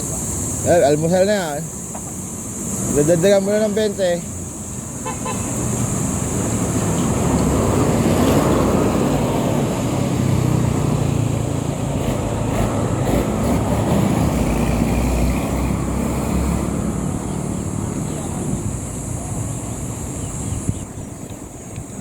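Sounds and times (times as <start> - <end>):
vehicle engine running: 4.4 - 20.8
wind noise on microphone: 5.0 - 22.0.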